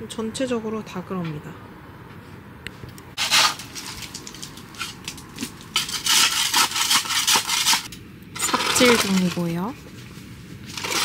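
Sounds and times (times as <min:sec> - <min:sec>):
shovel scraping wet ground: 0:03.2 - 0:09.7, 0:10.6 - 0:11.0.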